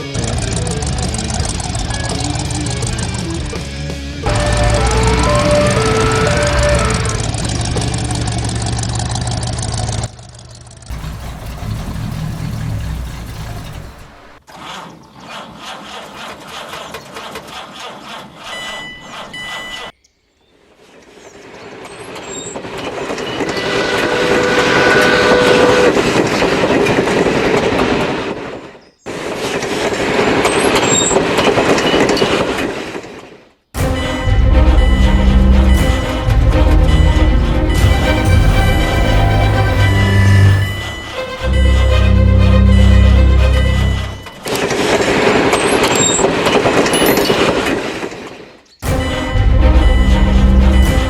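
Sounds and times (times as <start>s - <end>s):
rolling train rumble and clatter: 0.0s - 14.4s, 22.1s - 28.5s, 33.8s - 44.5s, 48.8s - 51.0s.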